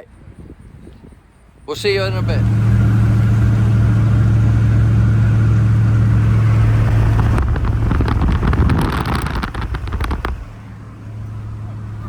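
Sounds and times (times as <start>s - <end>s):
diesel pickup engine humming: 1.7s - 12.0s
rapid clicks and rustling: 7.1s - 10.5s.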